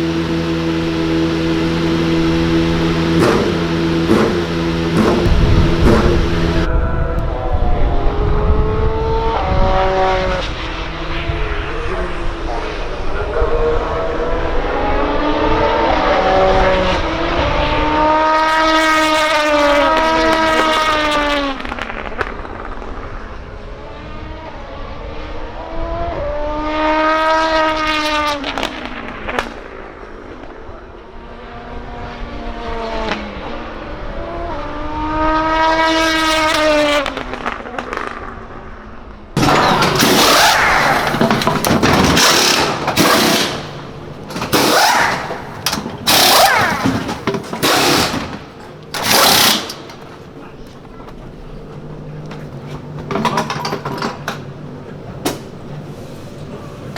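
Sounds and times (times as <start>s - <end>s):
loud harsh rattling: 0.0s - 6.7s, 39.4s - 50.6s
race cars passing at speed: 0.0s - 56.9s.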